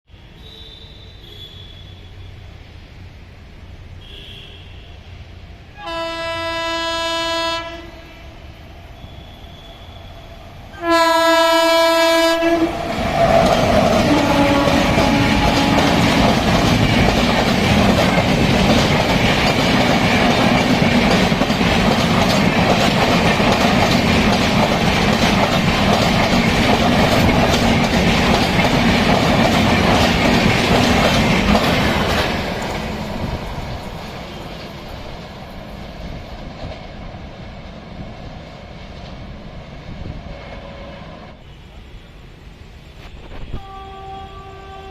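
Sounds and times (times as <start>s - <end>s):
train wheels rushing on rail: 0.2s - 44.9s
locomotive air horn blasts: 4.0s - 5.1s, 5.8s - 8.4s, 10.7s - 12.8s, 14.1s - 16.0s, 43.4s - 44.9s.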